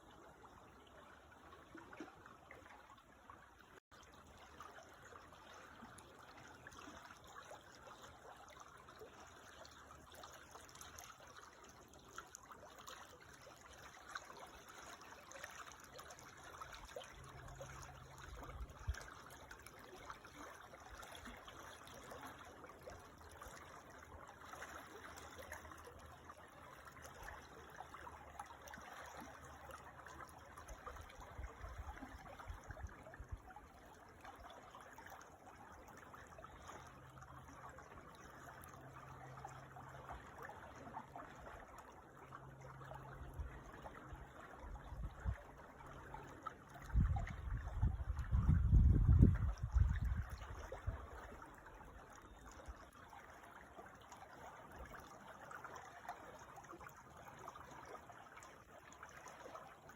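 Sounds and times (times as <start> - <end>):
creek water trickling: 0.0 - 59.9.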